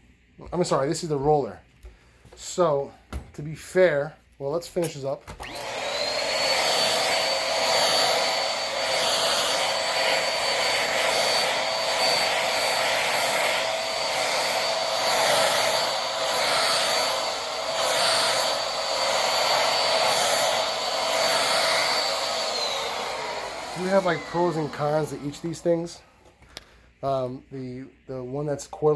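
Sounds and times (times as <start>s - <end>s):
vacuum cleaner running: 5.3s - 26.0s.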